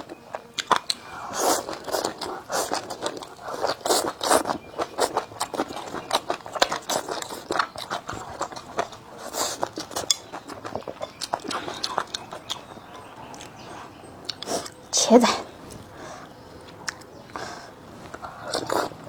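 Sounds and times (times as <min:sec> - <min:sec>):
chewing crunchy food: 0:00.0 - 0:19.0.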